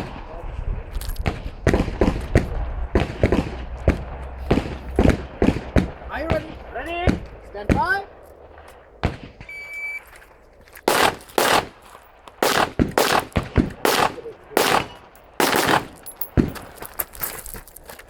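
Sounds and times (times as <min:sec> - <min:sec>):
rifle shots echoing: 0:01.2 - 0:16.8
shot timer beep: 0:09.5 - 0:10.1.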